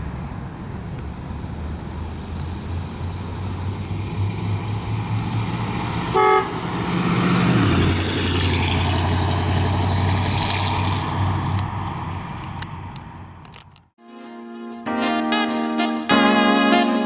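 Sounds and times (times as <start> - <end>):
car engine passing by: 0.0 - 13.8
car horn honk: 6.1 - 6.7.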